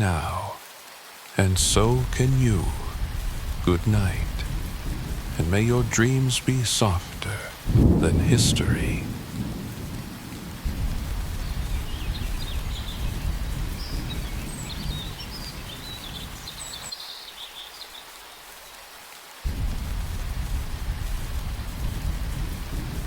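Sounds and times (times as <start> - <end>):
steady rain: 0.0 - 23.0
low thunder rumble: 1.6 - 16.4, 19.5 - 23.0.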